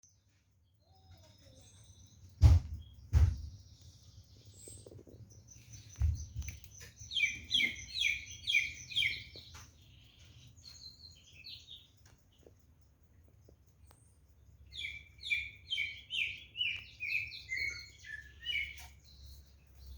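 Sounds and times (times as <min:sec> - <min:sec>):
songbird chirping and singing: 0:00.0 - 0:19.9
loud thuds: 0:02.4 - 0:03.6.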